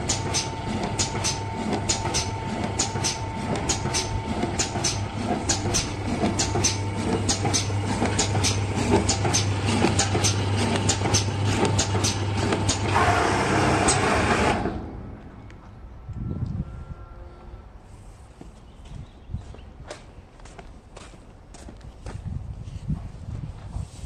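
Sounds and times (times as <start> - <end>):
regular machine clicking: 0.0 - 13.0
machine motor hum: 0.0 - 15.3.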